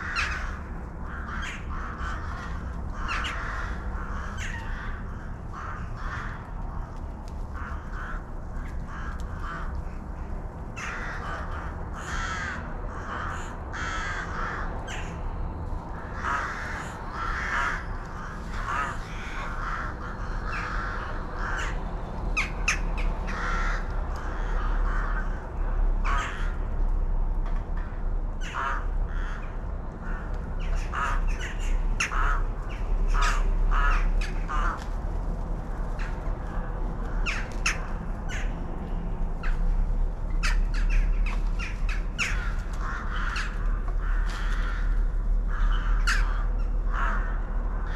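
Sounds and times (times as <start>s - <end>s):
birds calling: 0.0s - 6.9s, 15.9s - 26.5s, 27.8s - 34.8s, 36.0s - 47.9s
steady low rumble: 0.0s - 47.9s.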